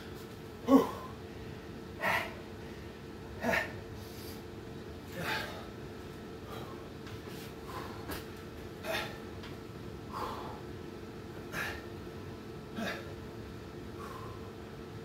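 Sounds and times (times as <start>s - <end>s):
man breathing hard: 0.7s - 4.5s, 6.4s - 8.2s, 10.0s - 10.8s, 13.9s - 14.7s.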